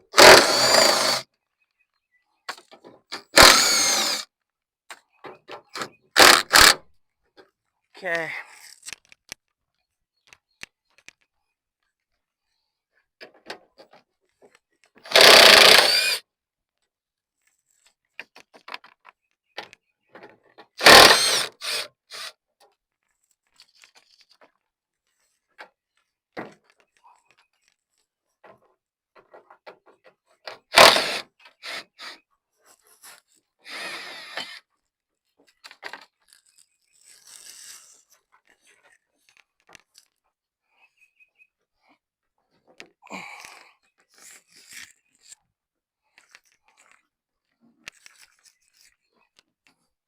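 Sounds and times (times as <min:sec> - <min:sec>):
power tool bursts: 0:00.1 - 0:01.2, 0:03.2 - 0:04.2, 0:06.2 - 0:06.8, 0:15.1 - 0:16.2, 0:20.8 - 0:22.3, 0:30.7 - 0:32.1, 0:33.7 - 0:34.6.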